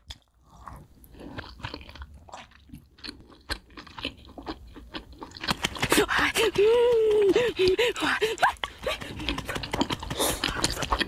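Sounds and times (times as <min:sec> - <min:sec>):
crunchy chewing: 0:00.0 - 0:06.0, 0:08.6 - 0:11.0.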